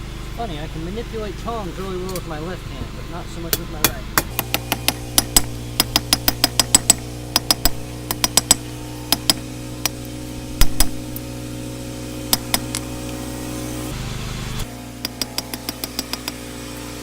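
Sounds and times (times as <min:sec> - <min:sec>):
steady hum: 0:00.0 - 0:17.0
hammer striking blade on anvil: 0:03.5 - 0:11.2, 0:12.3 - 0:13.1, 0:15.0 - 0:16.5.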